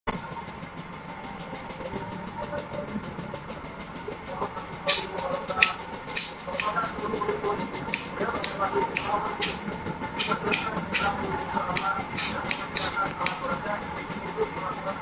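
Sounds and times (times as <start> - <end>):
steady mechanical hum: 0.1 - 15.0
sharp clicks or knocks: 4.9 - 6.8, 7.9 - 9.6, 10.2 - 13.4.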